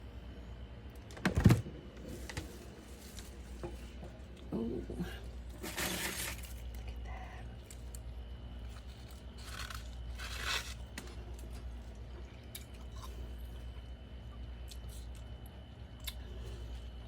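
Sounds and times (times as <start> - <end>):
frost being chewed crunching: 5.4 - 16.8.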